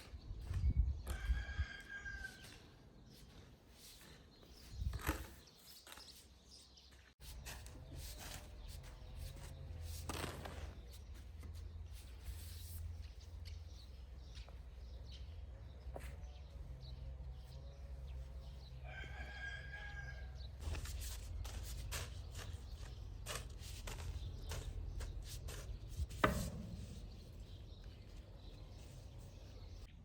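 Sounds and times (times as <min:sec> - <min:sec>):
rooster crowing: 0:01.1 - 0:02.5, 0:18.8 - 0:20.4.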